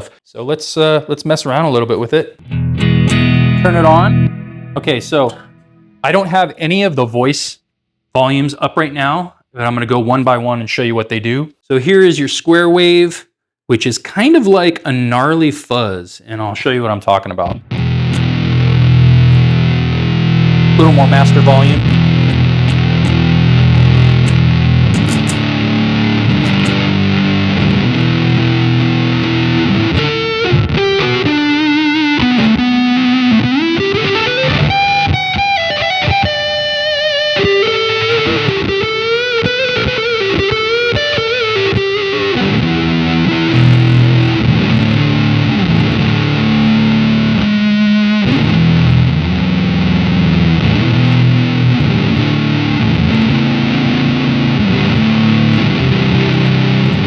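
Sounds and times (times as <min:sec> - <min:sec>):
electric guitar square-wave fuzz: 0:02.4 - 0:06.0, 0:17.6 - 0:57.0.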